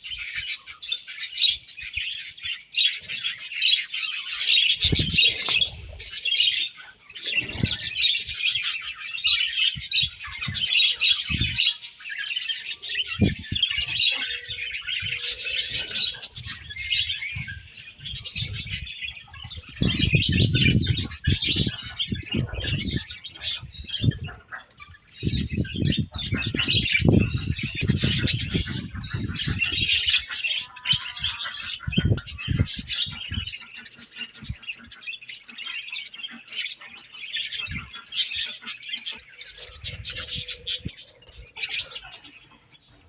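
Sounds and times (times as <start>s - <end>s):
budgerigars chirping and chattering: 0.0s - 43.0s.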